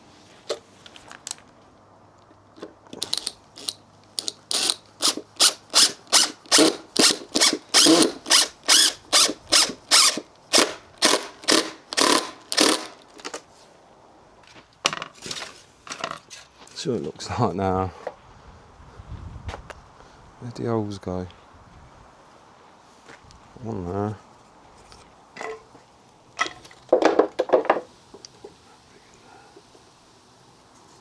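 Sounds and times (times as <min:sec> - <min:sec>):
hand tool working wood: 0:02.6 - 0:13.4.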